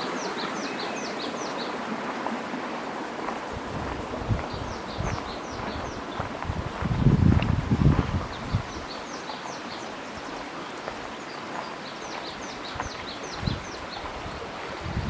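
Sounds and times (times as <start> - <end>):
birds chirping: 0.0 - 1.9, 4.2 - 14.4.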